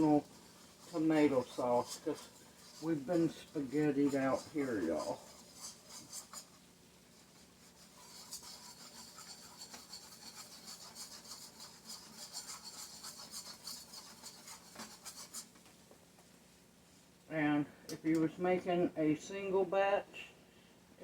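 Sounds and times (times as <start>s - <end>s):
utensil scraping a pan: 0.0s - 15.8s.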